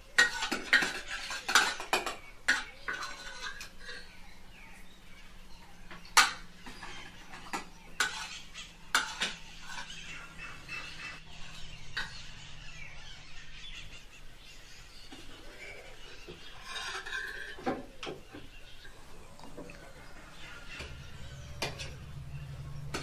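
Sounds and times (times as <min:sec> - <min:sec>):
spoons clinking on plates: 0:00.0 - 0:04.2, 0:06.1 - 0:10.1.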